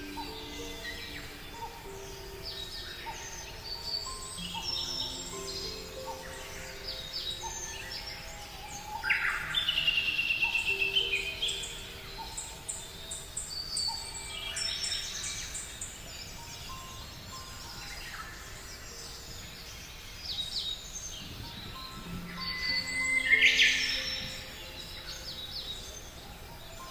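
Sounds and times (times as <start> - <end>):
small birds chirping and singing: 0.0 - 26.9
soft background music: 0.0 - 26.9
loud rapid bird trill: 21.2 - 26.9.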